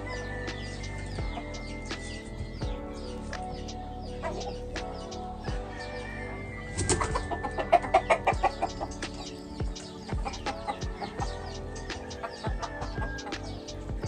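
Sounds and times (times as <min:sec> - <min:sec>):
background music: 0:00.0 - 0:14.0
chicken clucking: 0:06.8 - 0:09.2.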